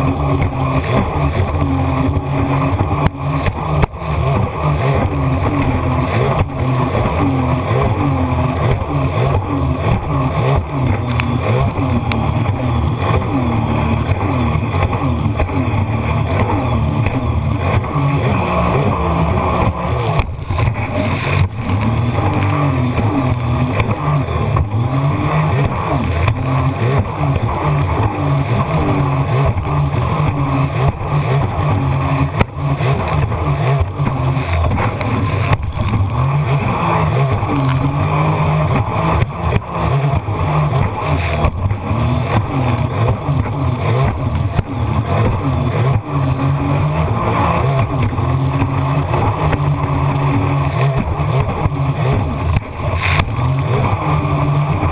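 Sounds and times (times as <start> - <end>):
jet ski engine revving: 0.0 - 54.9
water and wind rushing: 0.0 - 54.9.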